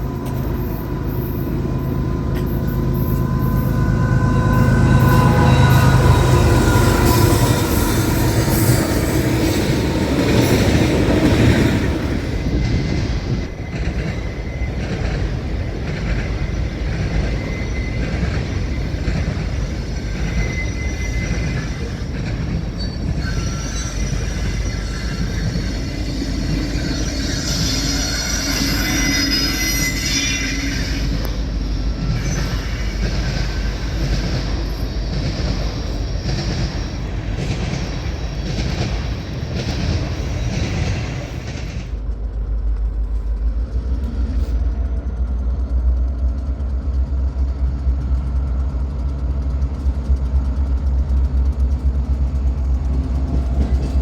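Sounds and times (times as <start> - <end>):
wheel squeals: 0.0 - 42.0
train rumbling on rails: 0.0 - 54.0.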